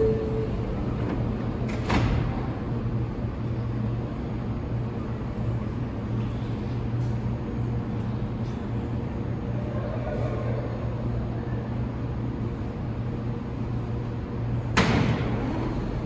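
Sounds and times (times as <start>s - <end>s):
brief tone: 0.0s - 1.4s
subway train humming: 0.0s - 16.0s.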